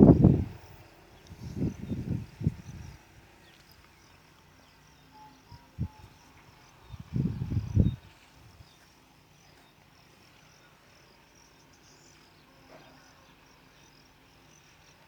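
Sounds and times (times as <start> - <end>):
faint high-pitched chirping: 0.0 - 15.0.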